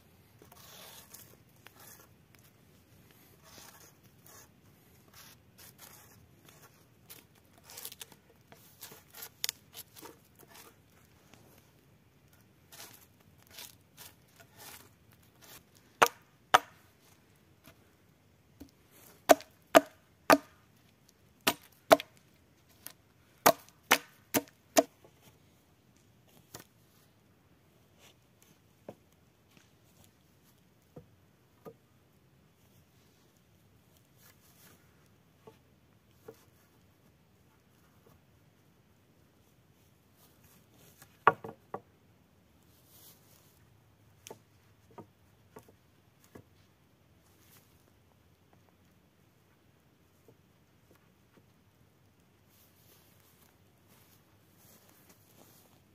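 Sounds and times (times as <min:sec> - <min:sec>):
axe chopping wood: 0:15.4 - 0:16.8, 0:19.3 - 0:20.6, 0:21.4 - 0:22.2, 0:23.4 - 0:24.9
rustling and crackling: 0:42.6 - 0:55.9.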